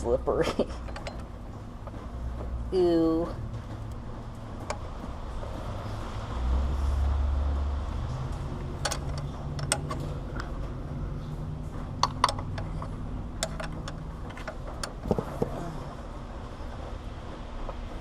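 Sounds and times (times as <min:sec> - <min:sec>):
low steady hum: 0:00.0 - 0:18.0
metallic clicks of wrench: 0:08.8 - 0:10.1, 0:12.0 - 0:15.1.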